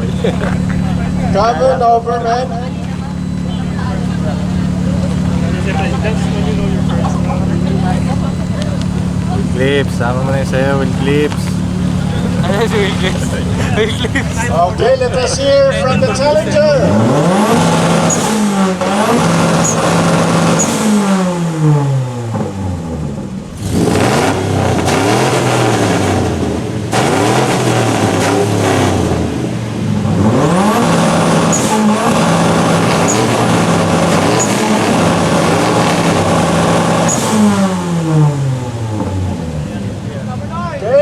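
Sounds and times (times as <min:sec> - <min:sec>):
car engine revving on rev limiter: 0:00.0 - 0:41.0.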